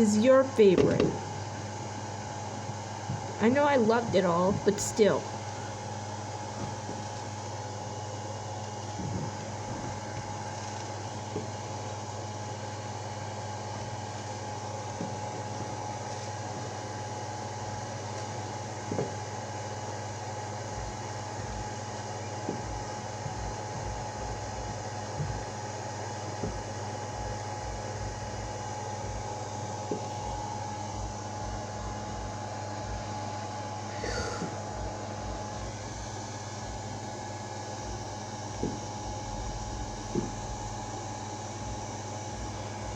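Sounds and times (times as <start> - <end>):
steady mechanical hum: 0.0 - 42.9
faint high whine: 19.6 - 42.9
low throb: 34.0 - 42.9.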